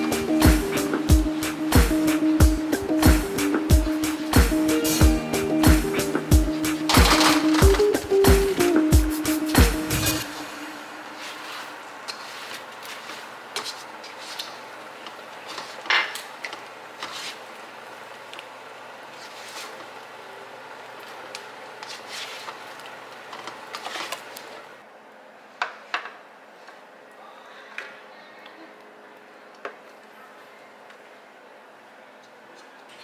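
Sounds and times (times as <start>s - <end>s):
steady hiss: 0.0s - 15.9s
wok knocking: 6.3s - 7.9s
spatula scraping against a wok: 11.1s - 14.6s.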